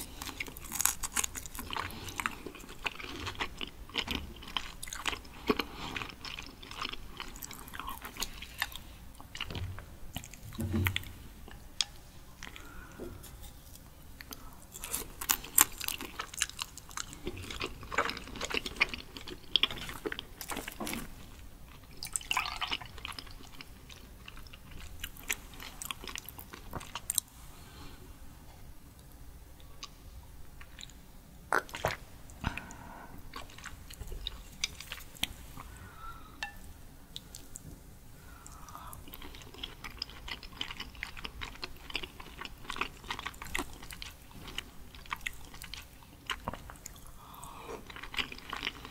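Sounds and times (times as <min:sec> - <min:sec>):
person chewing wetly: 0:00.0 - 0:11.2, 0:11.8 - 0:21.0, 0:21.7 - 0:27.3, 0:38.4 - 0:48.9.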